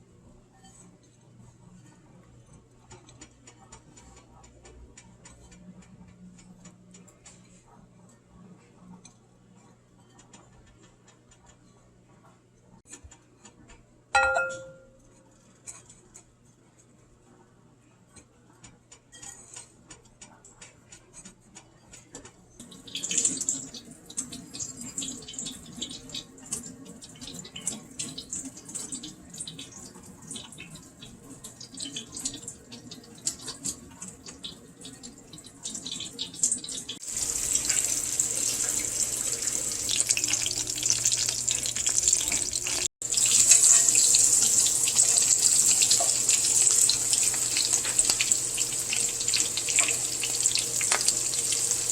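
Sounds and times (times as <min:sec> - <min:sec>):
chicken sizzling in hot oil: 0:22.6 - 0:51.9.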